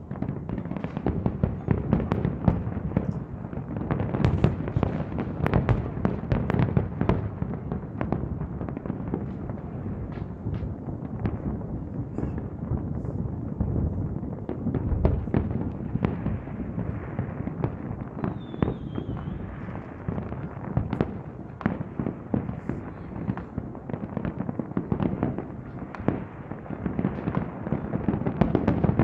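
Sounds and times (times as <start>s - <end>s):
fireworks bangs and crackles: 0.0s - 29.0s
fireworks rumble: 0.0s - 29.0s
fireworks high whistle: 18.2s - 19.9s.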